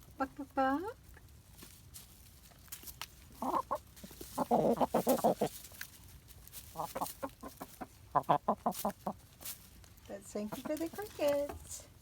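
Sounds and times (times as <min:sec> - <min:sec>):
hens clucking: 0:02.5 - 0:09.4, 0:10.1 - 0:11.8.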